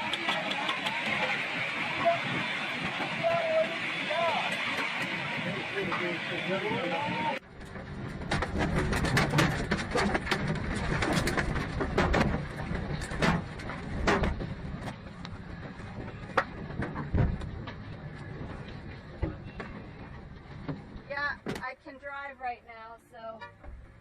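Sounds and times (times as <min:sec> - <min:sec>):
clatter of sharp knocks: 0:07.6 - 0:21.6.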